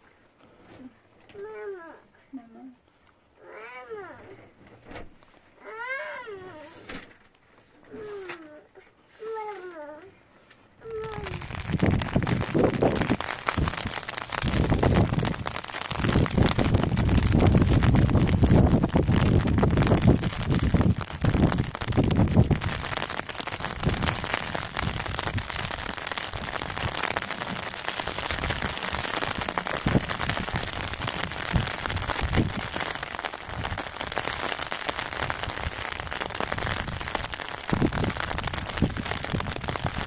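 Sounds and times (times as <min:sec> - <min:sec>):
steady rain pattering: 0:09.2 - 0:40.0
wind buffeting microphone: 0:11.3 - 0:23.0, 0:28.3 - 0:32.9, 0:35.6 - 0:40.0.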